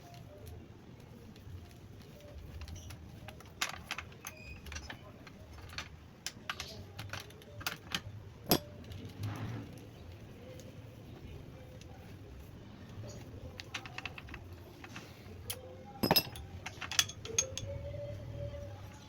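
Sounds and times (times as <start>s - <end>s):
metal tools clinking: 6.5s - 8.9s, 13.6s - 17.8s.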